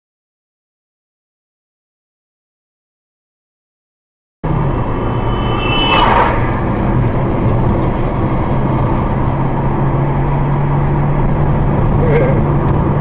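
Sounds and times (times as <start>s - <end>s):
car engine and road noise: 4.4s - 13.0s
brief rushing sound: 4.5s - 8.4s.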